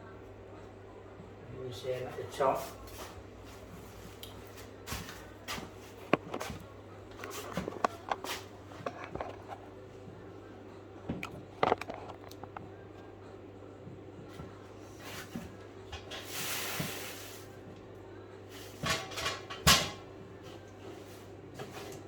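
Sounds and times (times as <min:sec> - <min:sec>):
steady low hum: 0:00.0 - 0:16.1
decorating tools clicking and knocking: 0:11.2 - 0:12.7.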